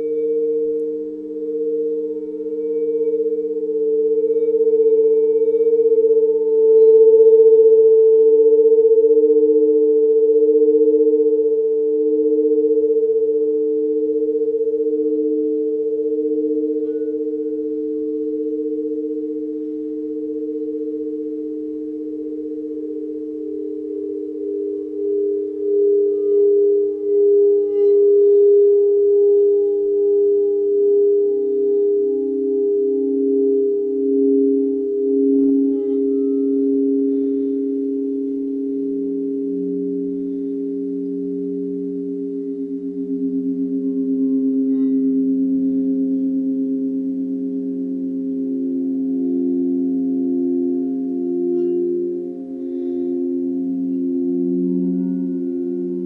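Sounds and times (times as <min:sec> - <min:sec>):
electronic pure tone drone: 0:00.0 - 0:56.0.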